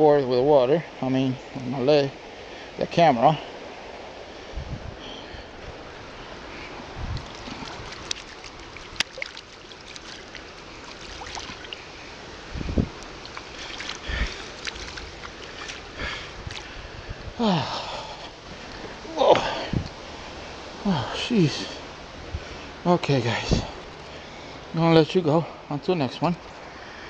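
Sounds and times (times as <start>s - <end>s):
river current rushing: 0.0s - 25.8s
wind on microphone: 4.4s - 9.0s, 12.3s - 17.5s, 18.9s - 20.2s, 23.3s - 23.8s.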